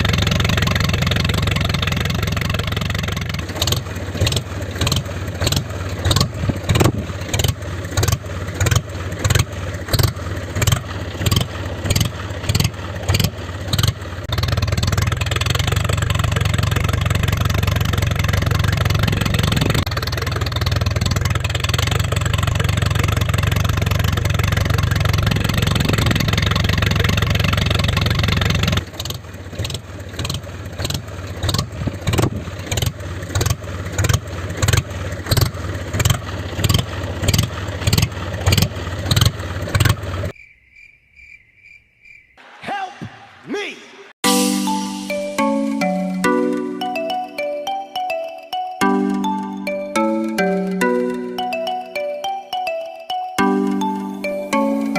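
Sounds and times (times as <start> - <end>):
tractor engine chugging: 0.0 - 40.4, 44.3 - 54.9.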